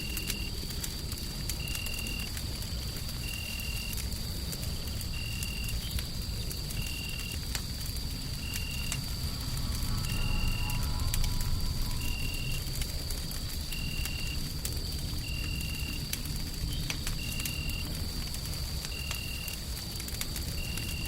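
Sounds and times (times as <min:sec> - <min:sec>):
low rumbling white noise: 0:00.0 - 0:20.9
wood fire crackling and popping: 0:00.0 - 0:21.0
faint high whine: 0:08.2 - 0:14.5.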